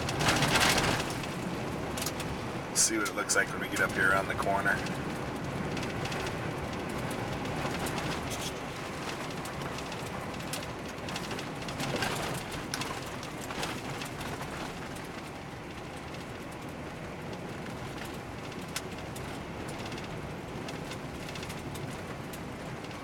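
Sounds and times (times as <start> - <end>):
road and tyre noise: 0.0 - 23.0
small clicks and crackles: 0.0 - 23.0.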